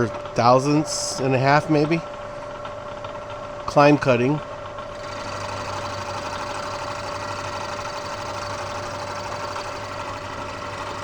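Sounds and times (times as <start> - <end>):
milling machine whine: 4.9 - 11.0
metal cutting noise: 5.0 - 11.0.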